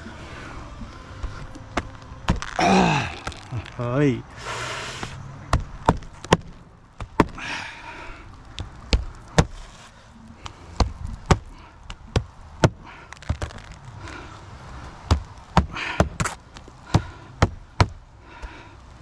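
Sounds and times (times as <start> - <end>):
scraping rustle: 8.2 - 11.7.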